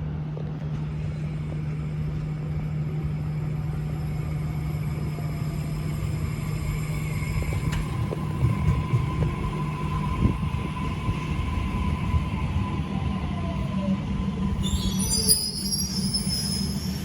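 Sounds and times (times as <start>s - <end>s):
electric train humming: 0.2s - 17.0s.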